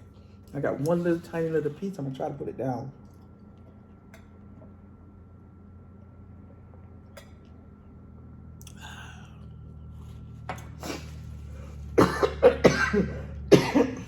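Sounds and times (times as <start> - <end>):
low steady hum: 0.0 - 14.0
person coughing: 11.9 - 14.0.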